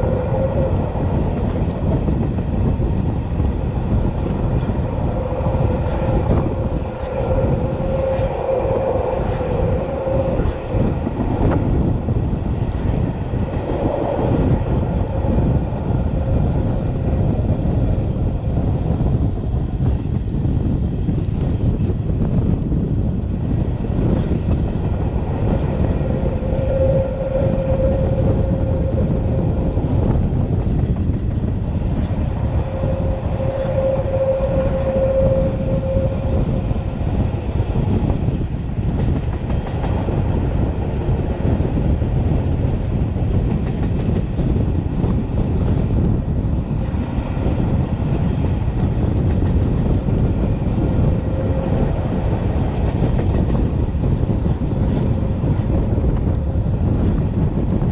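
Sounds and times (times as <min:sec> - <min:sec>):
train wheels rumbling on rails: 0:00.0 - 0:57.9
train wheels squealing: 0:05.1 - 0:11.6, 0:25.6 - 0:29.6, 0:32.0 - 0:37.1.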